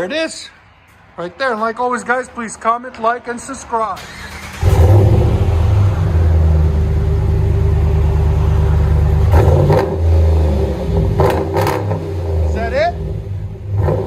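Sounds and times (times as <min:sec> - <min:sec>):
deep exhaust rumble of idling engine: 0:04.6 - 0:14.0.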